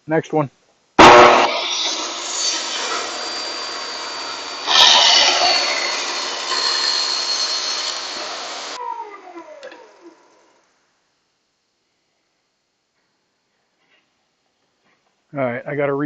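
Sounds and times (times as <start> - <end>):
table saw cutting wood: 1.0 - 10.1
saw blade whine: 1.0 - 10.6.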